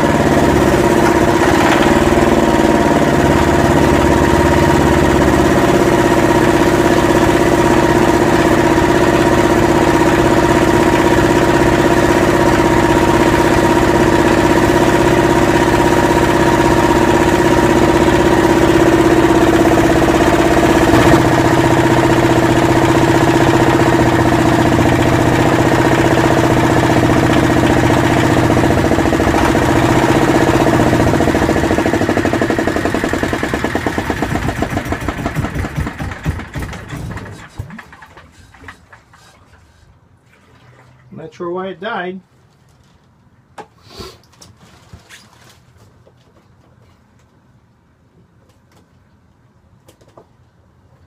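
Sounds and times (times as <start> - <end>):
diesel engine running and stalling: 0.0 - 39.9.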